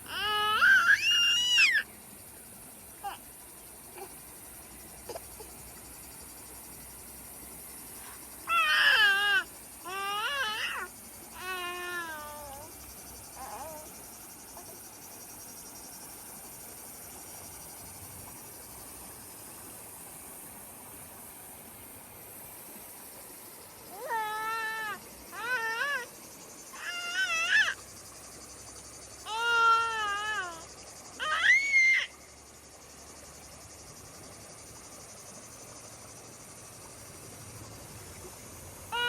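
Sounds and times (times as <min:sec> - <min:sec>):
faint high hiss: 0:00.0 - 0:39.0.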